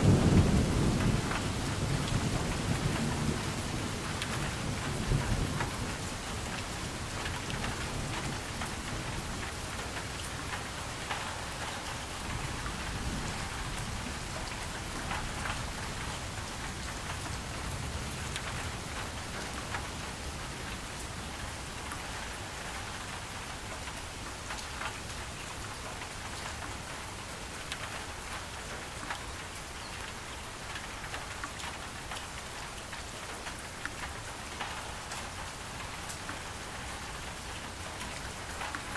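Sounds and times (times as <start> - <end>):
low rumble of thunder: 0.0 - 9.5
heavy rainfall: 0.0 - 38.9
rain drops pattering: 0.0 - 38.9.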